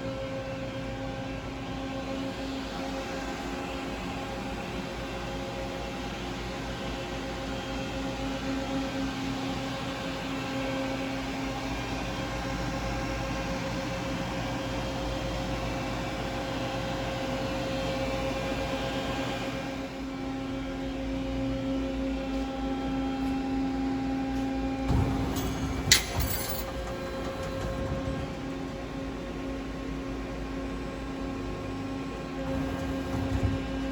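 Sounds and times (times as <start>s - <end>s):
machine humming: 20.3s - 33.9s.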